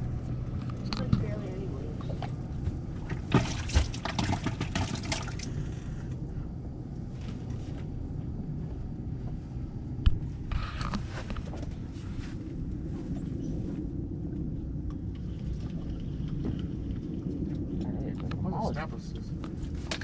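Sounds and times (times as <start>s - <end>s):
steady low rumble: 0.0s - 20.0s
water splashing and sloshing: 0.1s - 6.0s, 14.8s - 20.0s.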